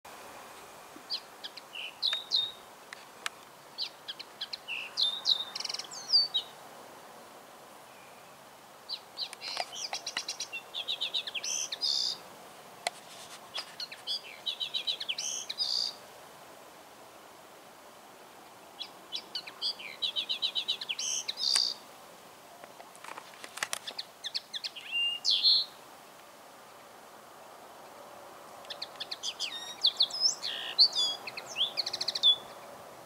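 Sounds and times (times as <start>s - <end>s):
songbird singing trills: 1.1s - 2.6s, 3.7s - 6.6s, 7.9s - 12.2s, 13.5s - 16.0s, 18.8s - 21.8s, 23.8s - 25.8s, 28.7s - 32.7s.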